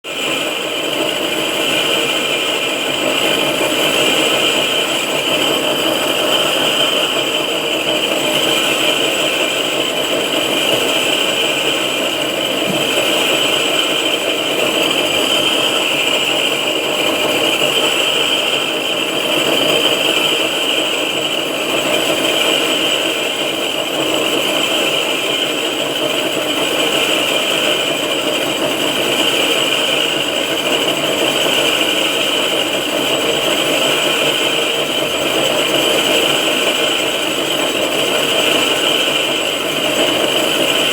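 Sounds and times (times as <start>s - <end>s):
milling machine rattle: 0.2s - 23.0s.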